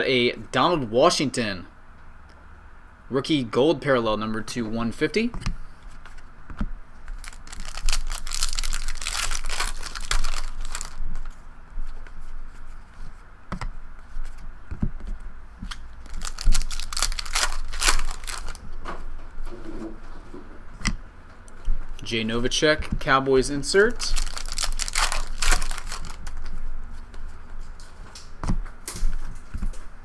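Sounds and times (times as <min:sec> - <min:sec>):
wrapper tearing and crinkling: 0:07.1 - 0:11.3, 0:15.7 - 0:18.6, 0:23.8 - 0:26.6.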